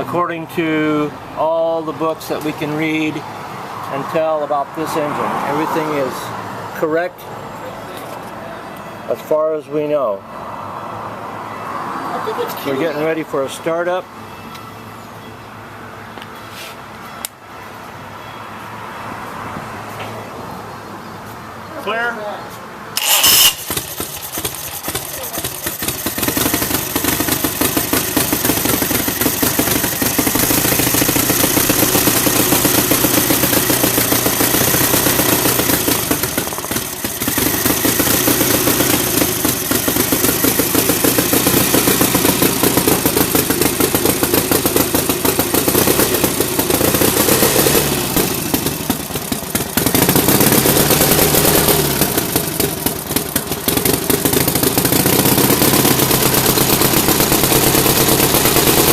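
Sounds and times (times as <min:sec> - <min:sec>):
motorcycle engine running: 0:23.0 - 0:58.9.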